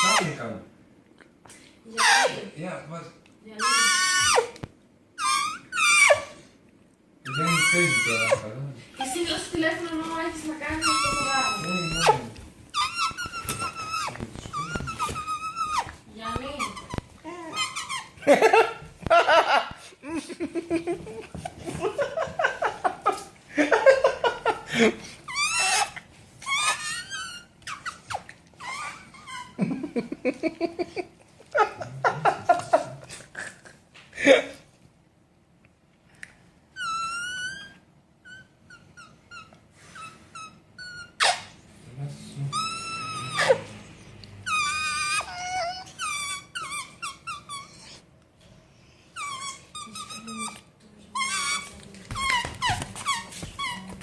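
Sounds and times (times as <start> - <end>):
high squeaky warbling calls: 0.0 - 0.4, 2.0 - 2.5, 3.5 - 4.6, 5.2 - 6.4, 7.2 - 8.5, 10.6 - 18.2, 25.3 - 29.6, 42.5 - 43.7, 44.5 - 48.0, 49.2 - 54.0
puppy whining: 0.0 - 0.5, 1.9 - 2.5, 3.5 - 6.6, 7.2 - 19.2, 24.4 - 29.8, 36.7 - 41.6, 42.2 - 48.2, 49.1 - 54.0.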